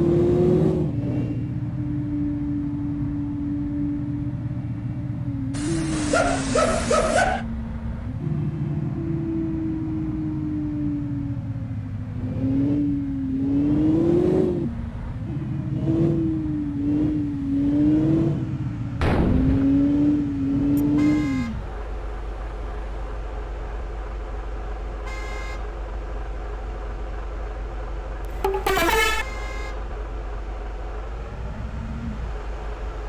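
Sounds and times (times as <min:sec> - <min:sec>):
truck engine revving: 0:05.0 - 0:10.4, 0:11.9 - 0:21.8.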